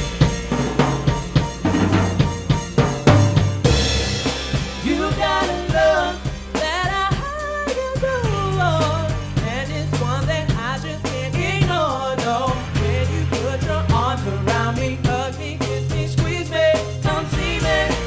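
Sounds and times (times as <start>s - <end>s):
band playing a song: 0.0s - 18.0s
cymbal hit: 3.1s - 6.6s
lead vocal singing: 4.6s - 18.0s.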